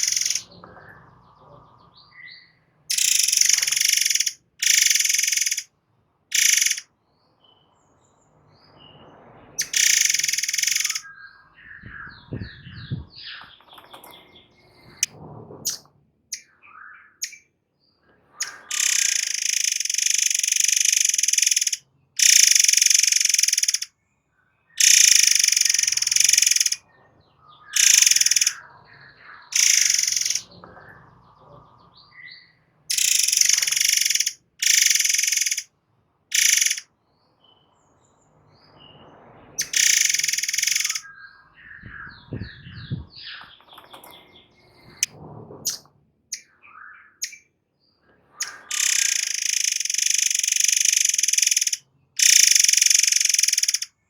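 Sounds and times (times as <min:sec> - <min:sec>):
songbird harsh buzzing bursts: 0:00.0 - 0:00.5, 0:02.9 - 0:05.7, 0:06.3 - 0:06.8, 0:09.6 - 0:11.0, 0:18.7 - 0:23.9, 0:24.8 - 0:26.8, 0:27.8 - 0:28.6, 0:29.6 - 0:30.5, 0:32.9 - 0:35.7, 0:36.3 - 0:36.8, 0:39.6 - 0:41.0, 0:48.7 - 0:53.9
faint bird chirps: 0:00.0 - 0:05.7, 0:06.3 - 0:07.8, 0:08.7 - 0:15.1, 0:15.7 - 0:35.7, 0:36.3 - 0:37.9, 0:38.7 - 0:45.1, 0:45.7 - 0:54.0.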